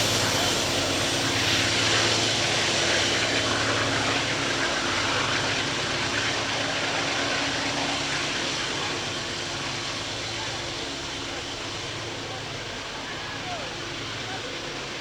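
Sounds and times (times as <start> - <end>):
locomotive engine drone: 0.0 - 3.9.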